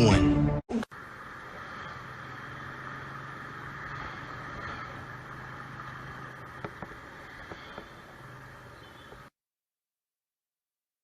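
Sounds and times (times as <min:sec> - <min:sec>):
vehicle engine hum: 0:00.8 - 0:09.4
road and wind noise: 0:00.9 - 0:09.3.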